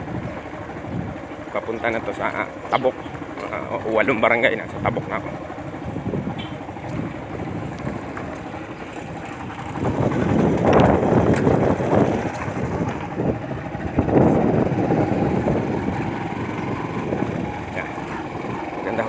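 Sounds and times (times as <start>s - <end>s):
motorcycle running: 0.0s - 19.0s
wind buffeting microphone: 0.0s - 19.0s.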